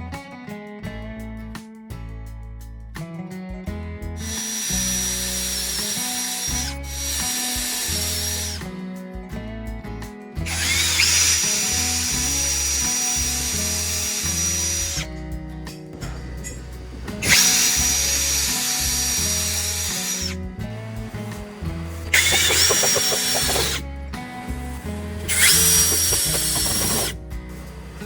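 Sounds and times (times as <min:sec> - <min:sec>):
background music: 0:00.1 - 0:28.0
power tool whining on wood: 0:04.2 - 0:08.6, 0:10.4 - 0:15.1, 0:16.7 - 0:23.8, 0:24.9 - 0:28.0.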